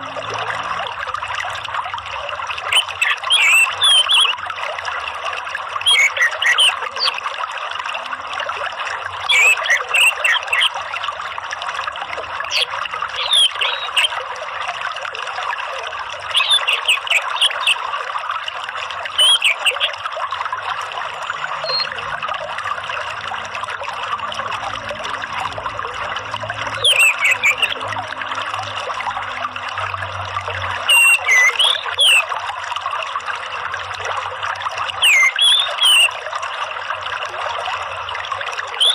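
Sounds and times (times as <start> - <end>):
trickling running water: 0.0 - 38.9
bird whistled calls: 2.7 - 4.3, 5.9 - 7.2, 9.3 - 10.7, 12.5 - 14.1, 16.3 - 17.8, 19.2 - 19.9, 21.6 - 21.9, 26.8 - 27.8, 30.9 - 32.3, 35.0 - 36.1.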